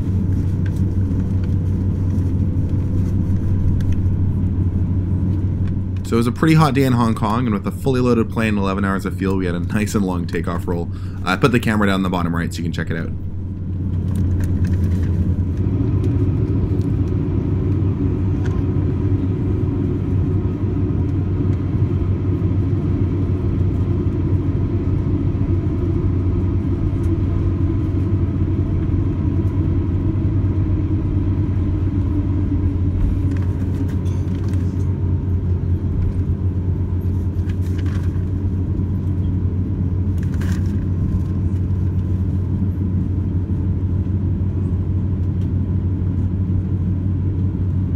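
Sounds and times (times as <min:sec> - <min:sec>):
jet engines rumbling at takeoff: 0:00.0 - 0:47.9
wheels rolling on runway: 0:11.2 - 0:39.4.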